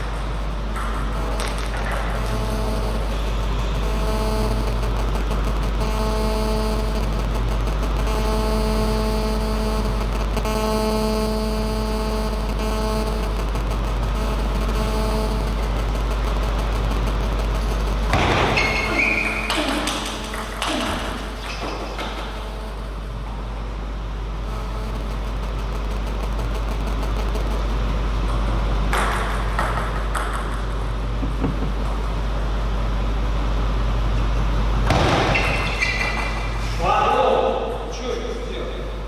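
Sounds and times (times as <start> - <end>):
steady low hum: 0.0 - 39.0
squeaks and knocks: 18.2 - 22.3, 35.1 - 36.5.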